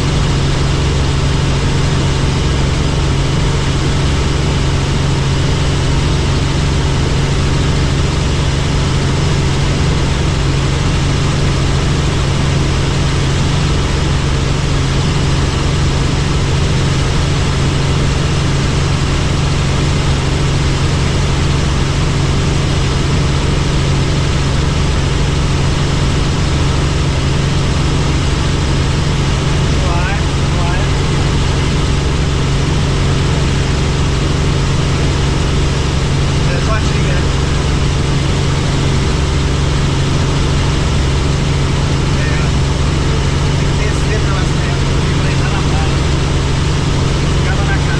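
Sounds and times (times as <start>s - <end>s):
helicopter engine and rotor: 0.0s - 47.9s.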